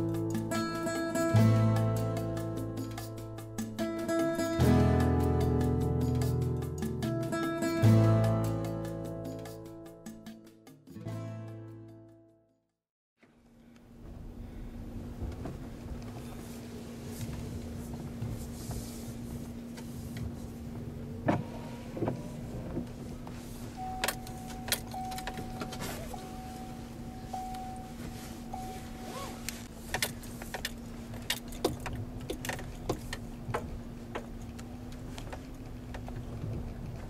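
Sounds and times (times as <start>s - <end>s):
low hum of car cabin: 13.2s - 37.0s
held beeping tone: 23.8s - 29.4s.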